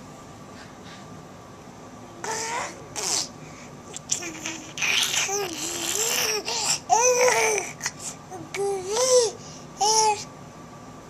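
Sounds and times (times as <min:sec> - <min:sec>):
baby babbling: 0:02.2 - 0:03.3, 0:03.9 - 0:10.3.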